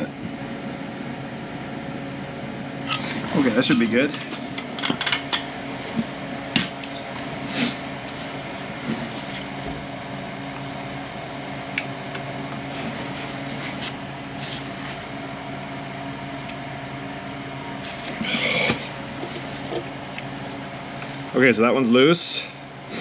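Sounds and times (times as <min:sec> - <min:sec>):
steady mechanical hum: 0:00.0 - 0:23.0.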